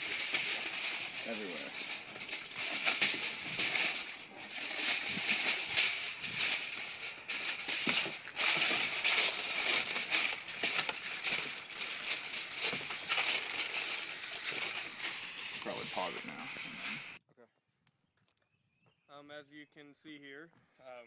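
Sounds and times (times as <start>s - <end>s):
aluminum foil crinkling: 0.0s - 17.2s.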